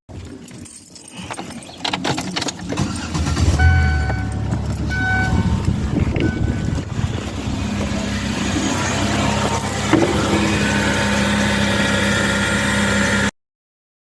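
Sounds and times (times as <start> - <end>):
car engine idling: 2.6 - 13.3.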